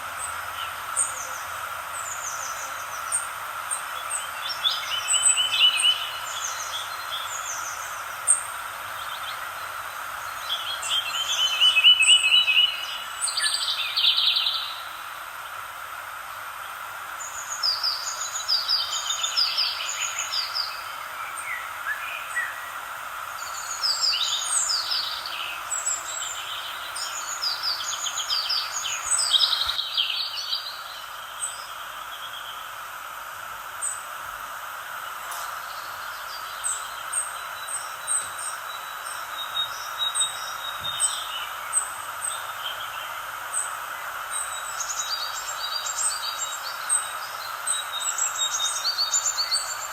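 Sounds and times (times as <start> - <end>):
background hiss: 0.0 - 49.9
songbirds chirping and trilling: 0.0 - 49.9.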